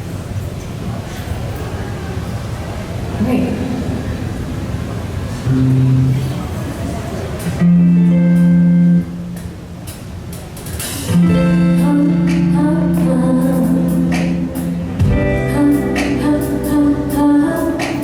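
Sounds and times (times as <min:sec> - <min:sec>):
guitar: 0:05.3 - 0:18.0
live band music: 0:07.4 - 0:09.5, 0:10.3 - 0:18.0
person singing: 0:11.3 - 0:18.0.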